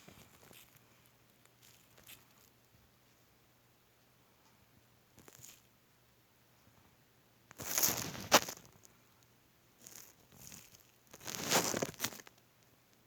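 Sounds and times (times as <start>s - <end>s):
rustling crinkling noise: 0.0s - 3.3s, 5.2s - 5.7s, 7.5s - 13.0s.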